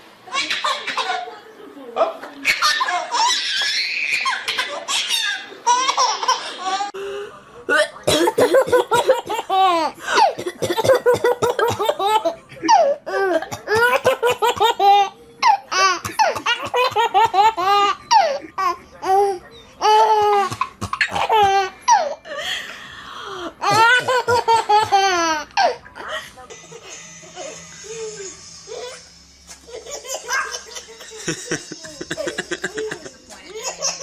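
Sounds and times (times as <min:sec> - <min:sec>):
baby laughing: 0:02.4 - 0:07.0, 0:11.4 - 0:22.2, 0:23.6 - 0:26.1, 0:29.7 - 0:34.0.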